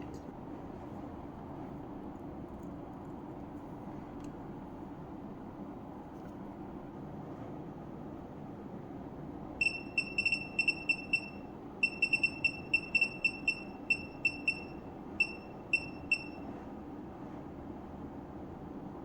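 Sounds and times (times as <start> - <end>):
faint steady hum: 0.0 - 19.0
short electronic beeps: 9.6 - 16.5.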